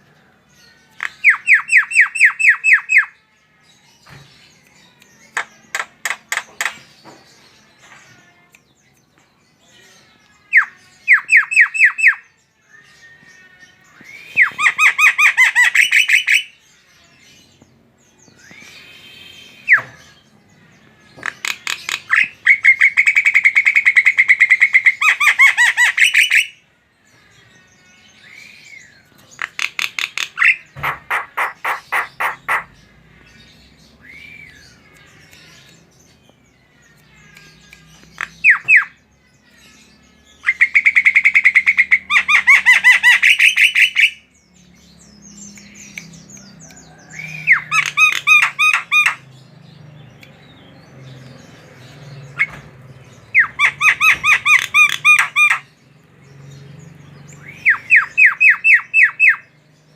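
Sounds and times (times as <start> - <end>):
starling chattering: 29.4 - 32.8.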